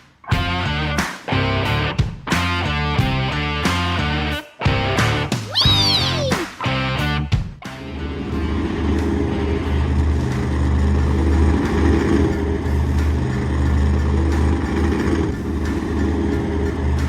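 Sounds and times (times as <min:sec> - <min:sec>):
truck engine rumble: 0:08.0 - 0:17.0.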